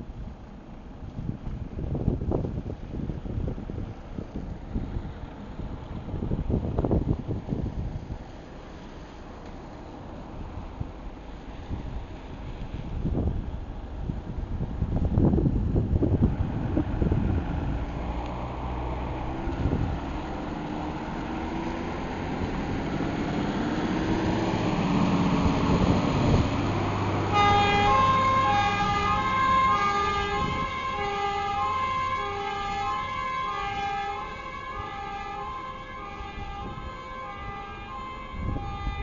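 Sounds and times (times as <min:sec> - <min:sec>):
fire engine revving: 0:00.0 - 0:39.0
two-tone siren: 0:27.2 - 0:39.0.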